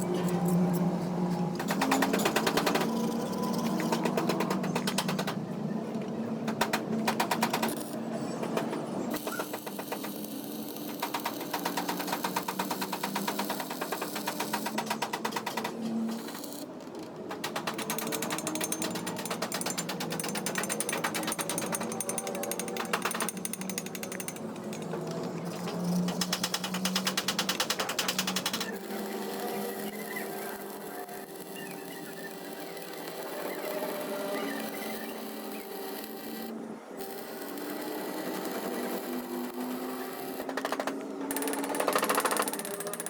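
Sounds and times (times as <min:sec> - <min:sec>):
power tool rapid rattling: 0:37.7 - 0:43.0.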